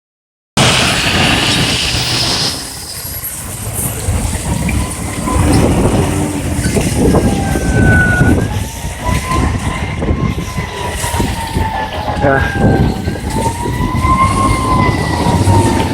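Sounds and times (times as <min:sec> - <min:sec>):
fire truck rumbling past: 0:00.6 - 0:15.9
faint wailing siren: 0:03.9 - 0:15.9.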